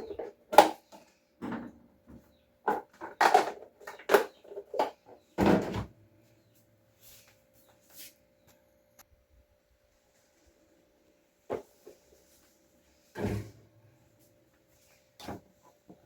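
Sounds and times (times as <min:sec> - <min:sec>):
food containers clattering: 0:00.0 - 0:05.9.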